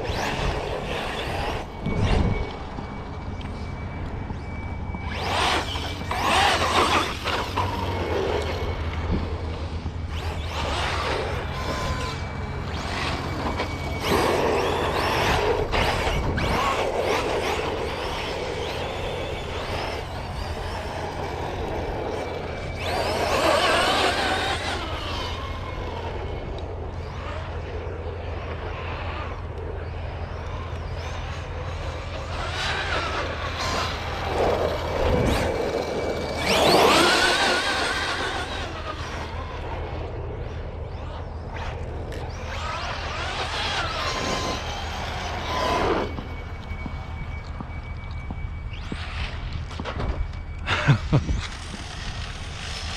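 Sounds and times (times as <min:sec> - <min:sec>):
electric toy car motors whining: 0:00.0 - 0:52.9.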